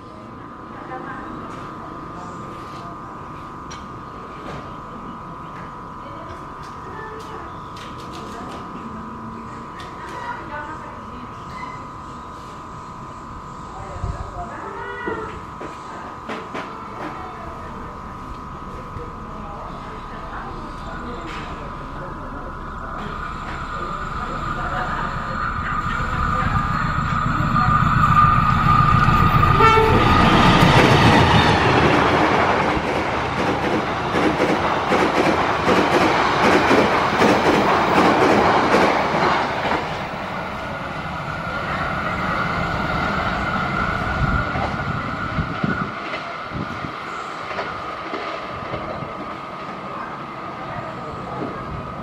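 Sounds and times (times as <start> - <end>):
steady high tone: 0.8 - 34.1
low engine rumble: 16.7 - 32.6.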